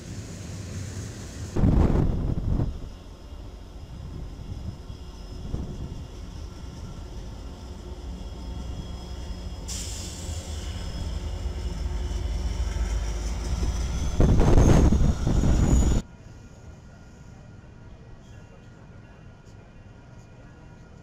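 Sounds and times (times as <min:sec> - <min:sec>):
train approaching: 0:00.0 - 0:18.1
high-pitched wheel whine: 0:01.6 - 0:16.0.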